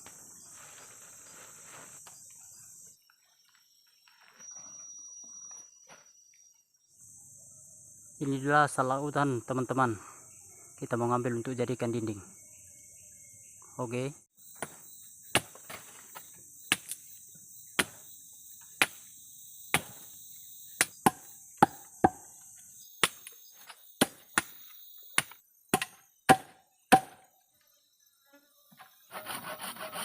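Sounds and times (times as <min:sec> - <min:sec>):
insects droning: 0:00.0 - 0:30.0
blade chopping wood: 0:14.6 - 0:15.9, 0:16.7 - 0:17.0, 0:17.8 - 0:18.0, 0:18.8 - 0:19.0, 0:19.7 - 0:20.1, 0:20.8 - 0:22.3, 0:24.0 - 0:27.3.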